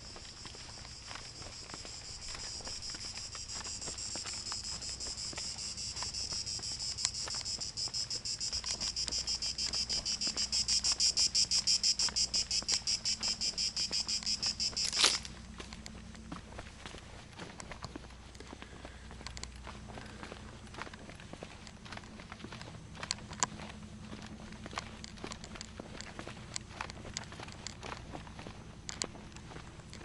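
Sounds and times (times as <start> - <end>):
cicada buzzing: 0.0 - 15.2.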